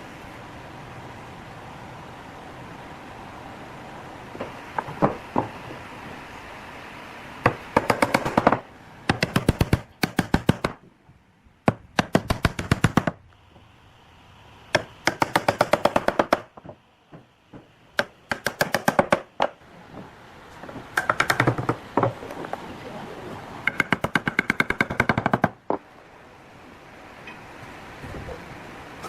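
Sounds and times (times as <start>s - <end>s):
rapid sharp knocks: 7.4s - 10.8s, 14.7s - 19.6s, 20.9s - 22.2s, 23.7s - 25.6s.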